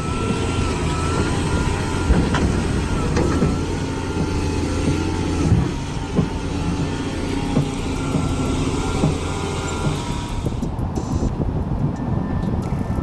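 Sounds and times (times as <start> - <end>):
diesel engine running: 0.0 - 13.0
sharp knocks and clanks: 0.1 - 12.6.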